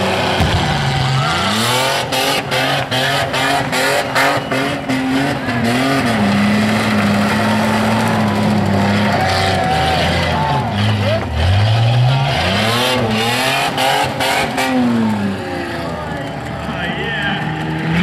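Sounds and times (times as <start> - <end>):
car engine revving hard: 0.0 - 16.4
sharp cracks: 0.4 - 3.0.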